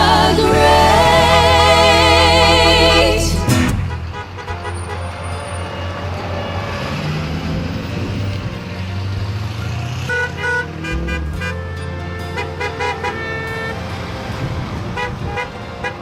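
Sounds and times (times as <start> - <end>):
low rumble of vehicles: 0.0 - 16.0
car horns honking: 3.2 - 7.3, 9.9 - 14.2, 14.9 - 16.0.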